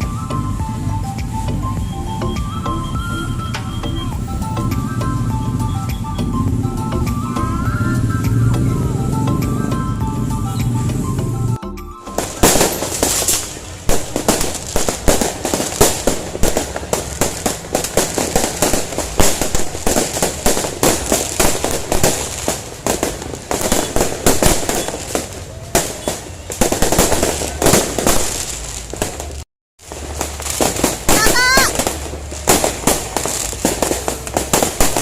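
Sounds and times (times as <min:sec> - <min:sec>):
fireworks cracking and banging: 0:12.0 - 0:35.0.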